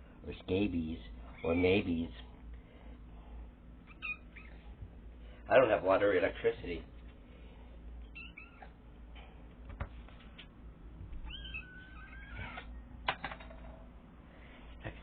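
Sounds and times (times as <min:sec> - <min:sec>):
kitten meowing: 0:03.9 - 0:04.6, 0:08.1 - 0:08.8, 0:11.2 - 0:12.7.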